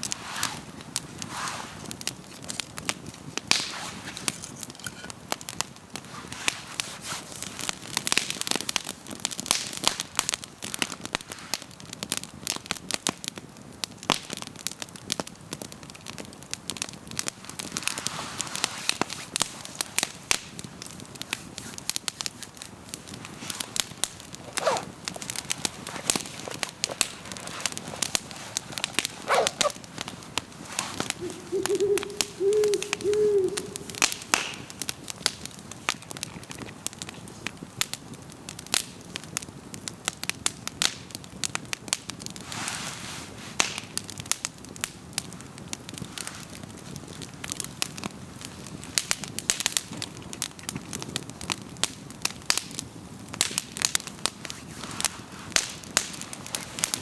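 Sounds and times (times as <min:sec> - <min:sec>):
wood fire crackling: 0:00.0 - 0:57.0
bird hooting: 0:29.2 - 0:29.8, 0:30.8 - 0:34.6.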